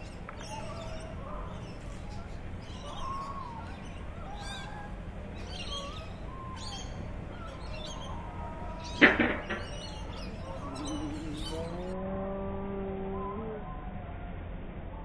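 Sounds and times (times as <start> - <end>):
small birds chirping: 0.0 - 12.0
low background hum: 0.0 - 15.0
sharp knock: 9.0 - 9.7.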